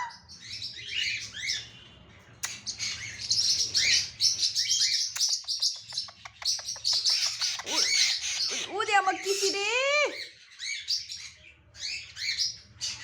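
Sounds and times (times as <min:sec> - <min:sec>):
parrot chirping: 0:02.5 - 0:12.8
parrot clicks: 0:05.2 - 0:07.8.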